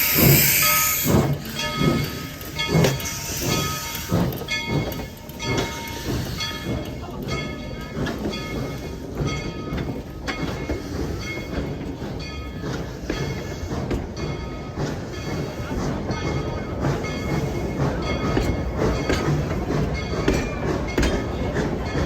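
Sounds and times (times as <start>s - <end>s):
locomotive bell ringing: 0.0s - 22.0s
steam locomotive exhaust chuffing: 0.0s - 22.0s
train running rumble: 0.0s - 22.0s.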